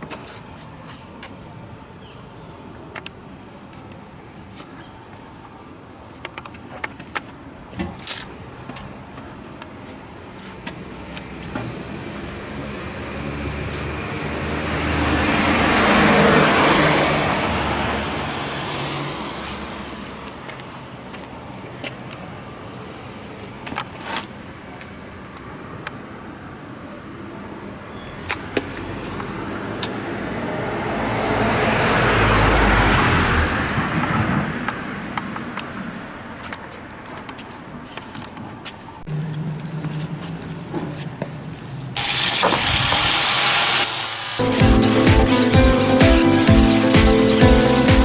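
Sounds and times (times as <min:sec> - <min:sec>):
car driving past: 0:13.2 - 0:19.4.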